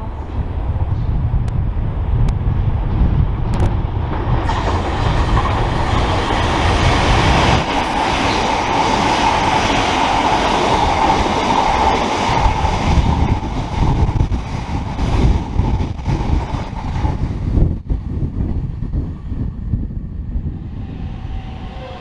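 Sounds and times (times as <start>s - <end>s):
electric train passing: 0.0s - 17.7s, 19.1s - 22.0s
wind buffeting microphone: 0.0s - 22.0s.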